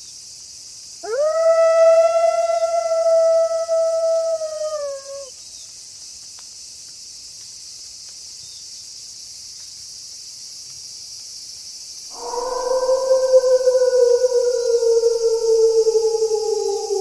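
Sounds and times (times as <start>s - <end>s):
crickets chirping: 0.0s - 17.0s
wolf howling: 1.0s - 5.3s, 12.2s - 17.0s.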